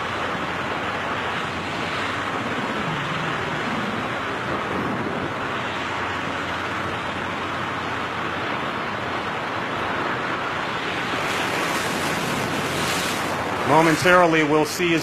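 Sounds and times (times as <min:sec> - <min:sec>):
rushing wind noise: 0:00.0 - 0:15.0.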